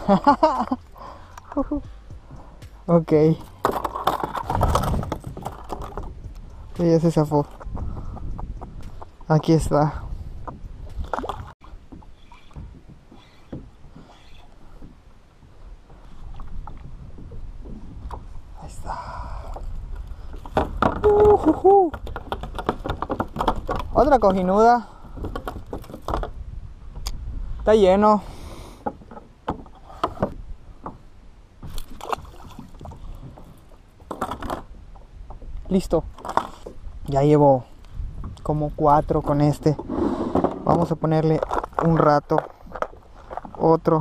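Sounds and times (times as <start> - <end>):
wind rumbling on microphone: 0.0 - 44.0
rustling clatter: 3.4 - 6.3, 22.0 - 24.4
water lapping against kayak hull: 10.1 - 26.4, 28.3 - 37.0, 39.7 - 44.0.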